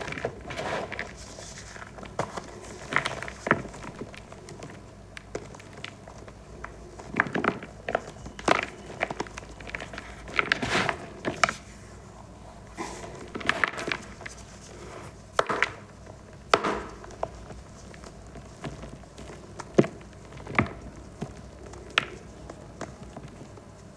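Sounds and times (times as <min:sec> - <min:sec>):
chalk crunching and crackling: 0:00.0 - 0:12.0.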